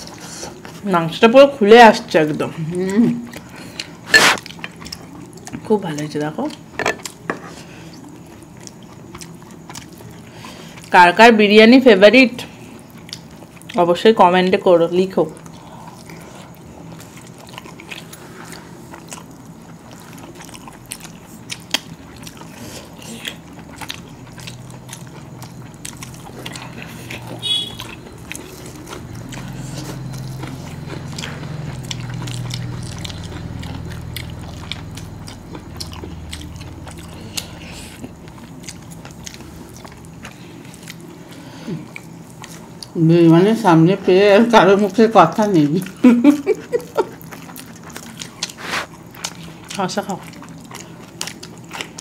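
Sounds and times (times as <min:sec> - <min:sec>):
people chewing food: 0:00.0 - 0:52.0
low hum: 0:23.9 - 0:41.1.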